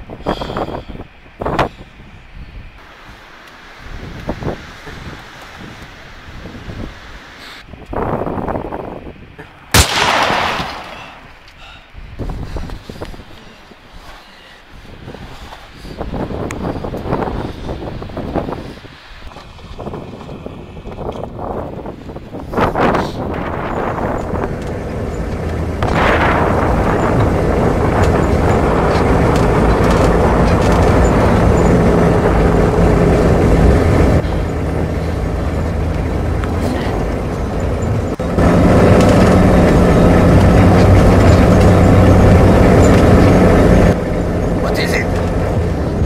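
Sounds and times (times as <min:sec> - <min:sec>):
engine running with low hum: 0:09.7 - 0:46.0.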